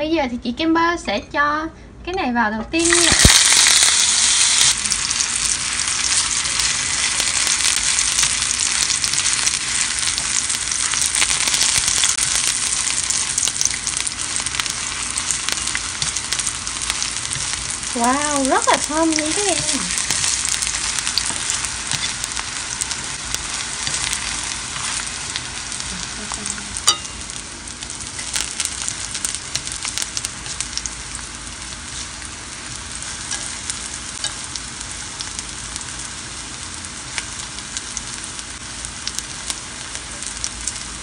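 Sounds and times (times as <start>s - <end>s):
food sizzling in oil: 2.8s - 41.0s
chopsticks tapping pan: 26.8s - 27.3s.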